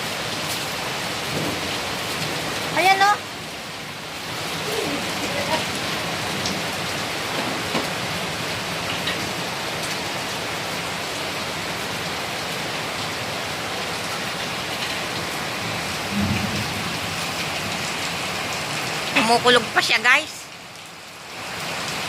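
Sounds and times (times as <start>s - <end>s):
heavy rain pouring: 0.0s - 22.0s
low rumble of thunder: 1.2s - 2.8s, 15.7s - 17.9s.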